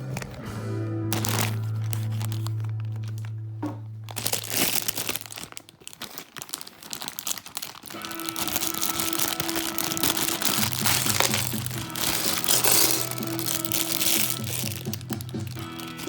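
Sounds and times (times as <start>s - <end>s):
plastic crinkling: 0.0s - 0.5s, 1.1s - 16.0s
background music: 0.0s - 4.6s, 7.8s - 16.0s.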